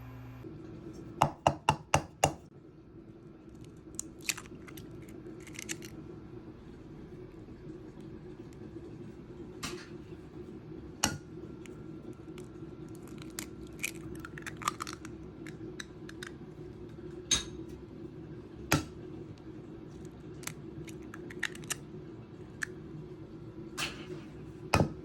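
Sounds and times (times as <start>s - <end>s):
low hum: 0.0s - 0.8s.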